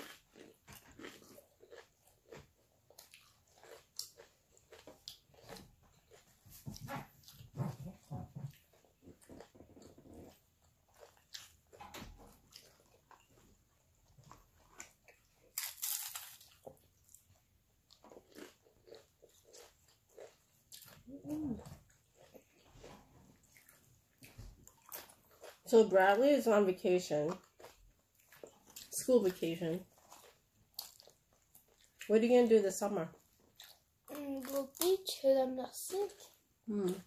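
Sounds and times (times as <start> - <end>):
chewing: 0.0 - 25.7, 27.3 - 29.0, 29.8 - 32.1, 33.1 - 34.9
crunching chips: 14.6 - 16.8.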